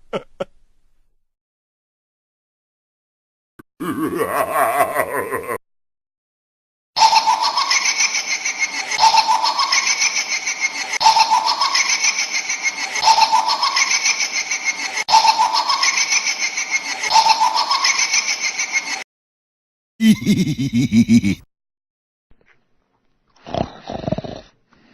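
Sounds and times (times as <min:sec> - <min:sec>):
laughing sound effect: 0:00.0 - 0:00.5, 0:03.8 - 0:05.6, 0:07.0 - 0:19.0, 0:20.0 - 0:21.5.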